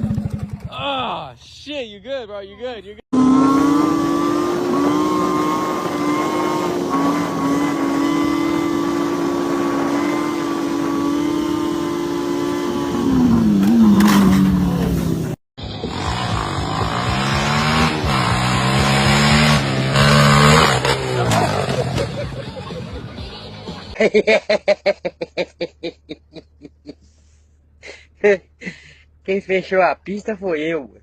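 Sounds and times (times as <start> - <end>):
motorcycle engine revving: 0.0 - 1.0, 3.1 - 23.9
engine revving up and down: 3.2 - 23.7.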